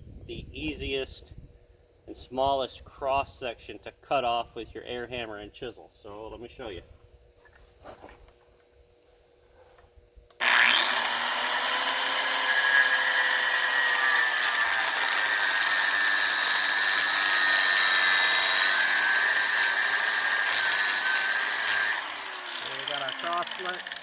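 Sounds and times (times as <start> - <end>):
angle grinder cutting metal: 10.4 - 24.0.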